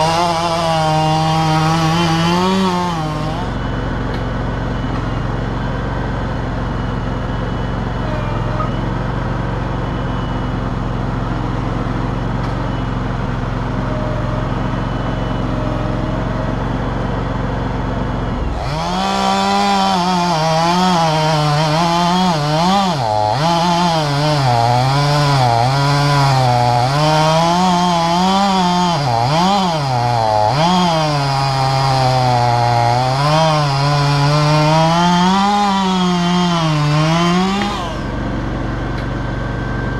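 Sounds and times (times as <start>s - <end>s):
chainsaw cutting log: 0.0s - 9.8s, 10.6s - 39.9s
low engine idle: 3.4s - 18.6s.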